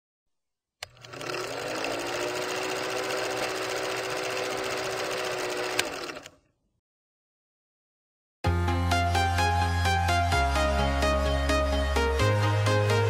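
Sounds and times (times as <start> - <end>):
film projector clattering: 0.8 - 6.4.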